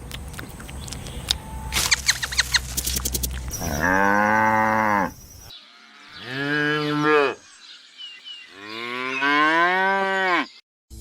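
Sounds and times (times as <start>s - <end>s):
cow mooing: 3.5s - 5.2s, 6.1s - 7.4s, 8.5s - 10.6s.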